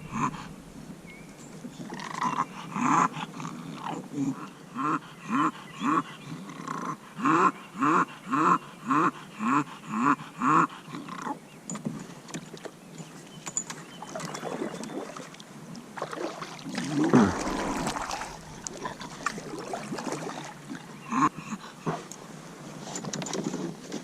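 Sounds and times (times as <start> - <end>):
water noise: 0.0 - 4.9, 14.0 - 22.8.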